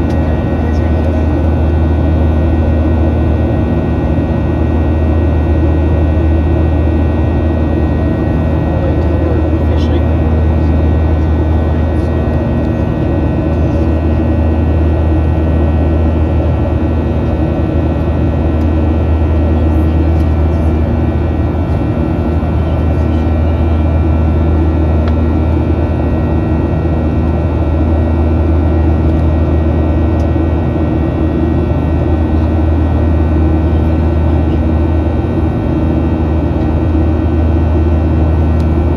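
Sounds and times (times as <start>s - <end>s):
airplane cabin rumble: 0.0s - 38.9s.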